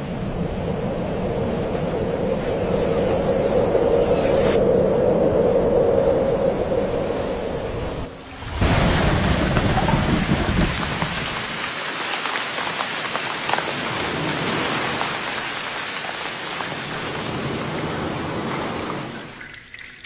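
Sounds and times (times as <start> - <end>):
heavy rain hissing: 7.0 - 19.4
raindrop clicks: 9.2 - 17.3.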